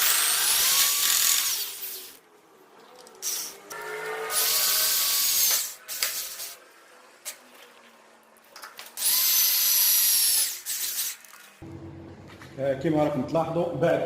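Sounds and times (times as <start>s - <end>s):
power drill whining: 0.0s - 2.2s, 3.3s - 6.6s, 9.0s - 11.4s.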